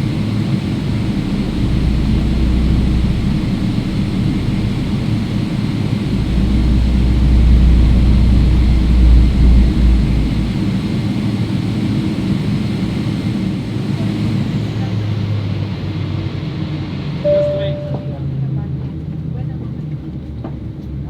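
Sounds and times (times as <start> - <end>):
deep low rumble: 0.0 - 11.8, 17.3 - 18.4
aircraft cabin rumble: 0.0 - 14.0.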